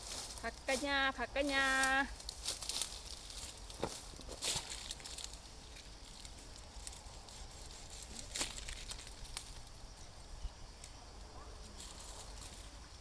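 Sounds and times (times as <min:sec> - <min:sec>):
rustling in vegetation: 0:00.0 - 0:13.0.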